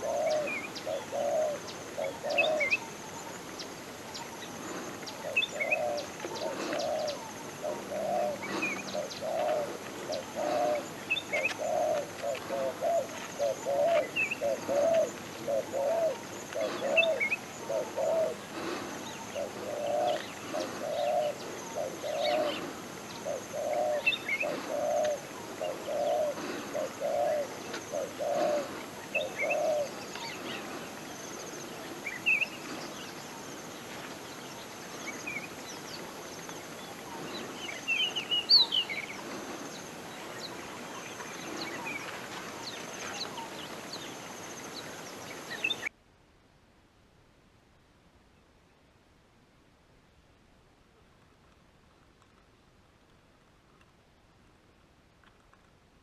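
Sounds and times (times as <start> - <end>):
dove cooing: 0.0 - 44.1
small birds chirping: 0.0 - 45.9.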